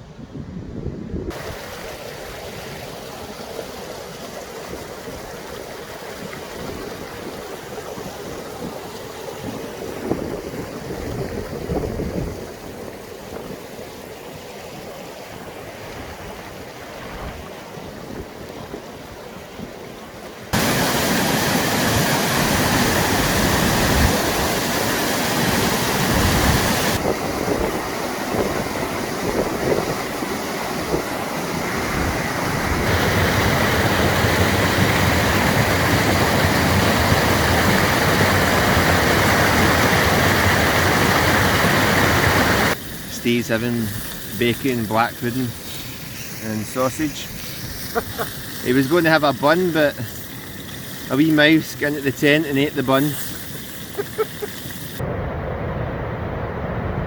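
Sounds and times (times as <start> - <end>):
strong wind: 0.0 - 3.0, 4.6 - 13.9, 15.4 - 48.7, 54.8 - 57.0
heavy rain: 20.5 - 44.3.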